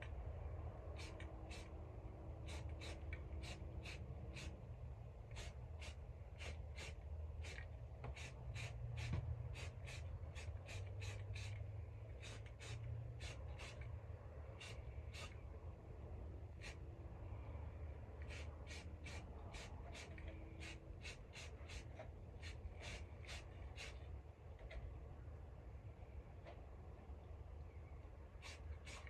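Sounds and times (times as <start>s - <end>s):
steady low hum: 0.0s - 29.0s
aerosol spray can hissing bursts: 1.0s - 1.7s, 2.4s - 4.6s, 5.3s - 11.6s, 12.2s - 13.9s, 14.5s - 15.4s, 16.6s - 16.8s, 18.2s - 24.0s, 28.4s - 29.0s.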